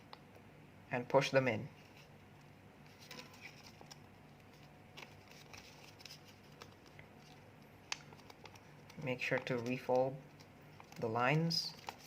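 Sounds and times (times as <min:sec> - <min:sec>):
paper rustling and crinkling: 0:02.8 - 0:12.0.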